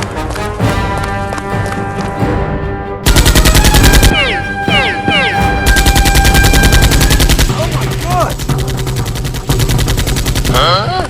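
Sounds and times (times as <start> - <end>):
background music: 0.0 - 11.0
machine gun firing: 3.0 - 11.0.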